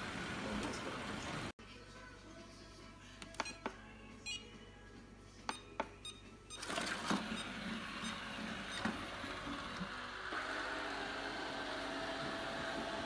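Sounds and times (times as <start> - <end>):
robot vacuum whirring: 6.6 - 13.0.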